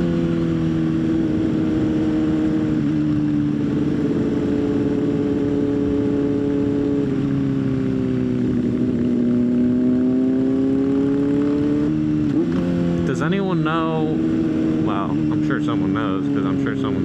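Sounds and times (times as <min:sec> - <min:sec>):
rushing wind: 0:00.0 - 0:16.3
motorcycle engine cruising: 0:00.0 - 0:17.0.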